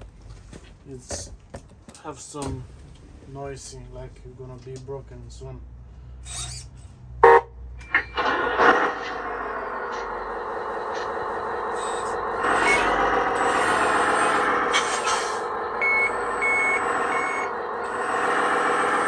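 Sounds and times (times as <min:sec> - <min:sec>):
simulated truck engine from speaker: 0:02.0 - 0:19.0
reversing beeps: 0:10.9 - 0:14.6, 0:15.8 - 0:18.2.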